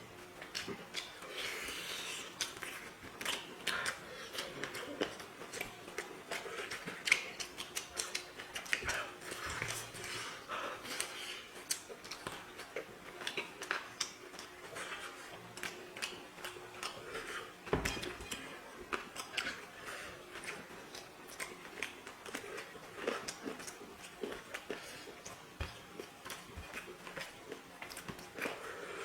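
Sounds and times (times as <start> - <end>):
chewing: 0.4 - 29.0.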